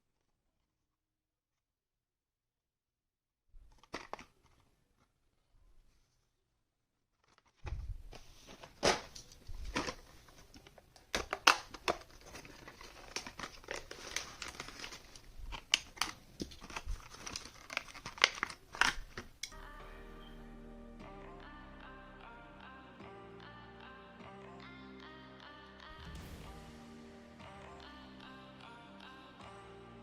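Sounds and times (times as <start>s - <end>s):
packaging clicks and snaps: 3.7s - 4.6s, 8.6s - 19.6s
plastic packaging crinkling: 7.2s - 19.5s.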